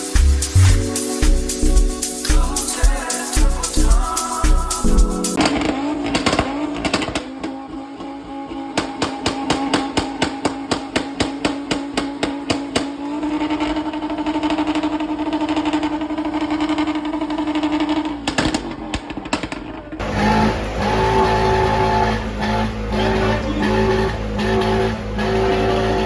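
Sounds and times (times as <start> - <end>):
car engine revving with stutter: 1.6 - 19.3, 19.9 - 26.0.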